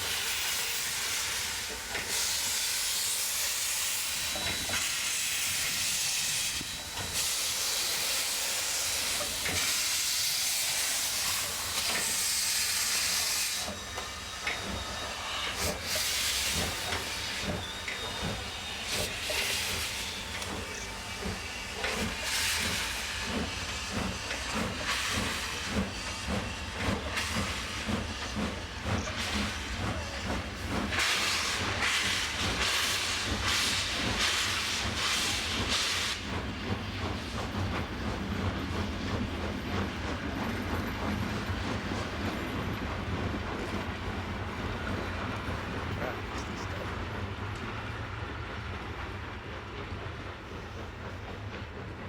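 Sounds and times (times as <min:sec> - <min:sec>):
loud burst of steam hiss: 0:00.0 - 0:36.3
steam locomotive hissing: 0:00.0 - 0:52.0.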